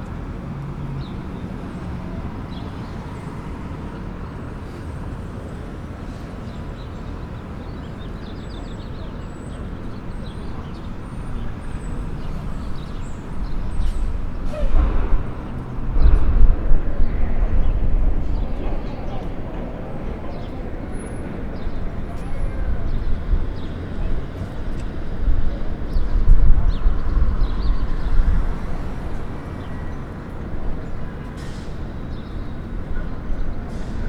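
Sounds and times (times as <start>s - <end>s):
traffic rumble: 0.0s - 34.0s
heavy vehicle passing close: 10.5s - 34.0s.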